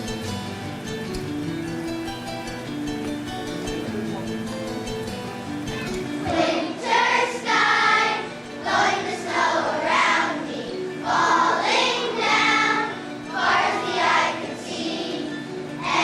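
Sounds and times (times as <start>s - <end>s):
instrumental accompaniment: 0.0s - 16.0s
children's choir singing: 5.8s - 16.0s.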